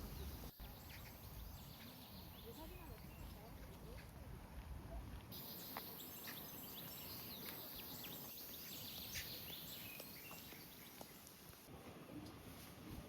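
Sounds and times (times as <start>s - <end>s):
small birds chirping: 0.0s - 4.1s, 5.3s - 11.6s.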